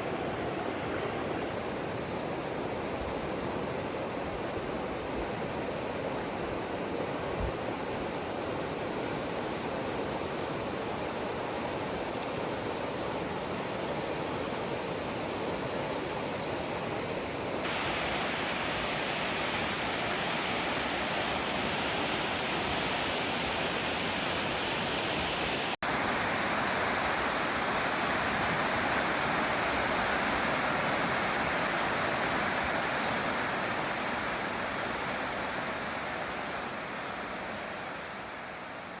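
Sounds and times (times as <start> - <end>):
waterfall rushing: 0.0 - 2.8, 17.6 - 39.0.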